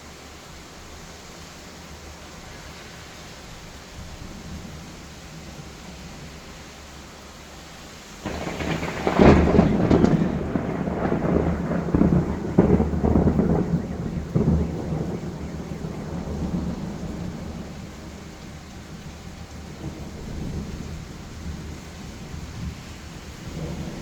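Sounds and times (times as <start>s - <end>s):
rain: 0.0s - 24.0s
thunder crack and rumbles: 8.2s - 24.0s.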